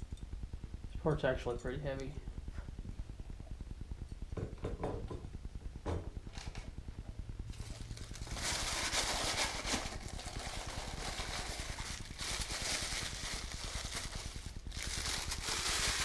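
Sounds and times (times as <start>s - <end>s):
packing paper crinkling: 7.5s - 16.0s.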